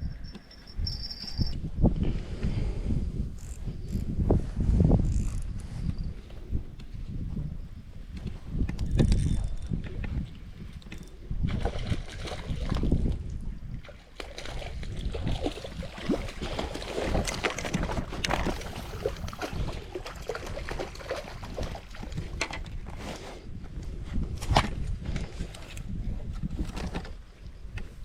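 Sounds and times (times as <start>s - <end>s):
water sloshing and splashing: 10.1s - 23.0s.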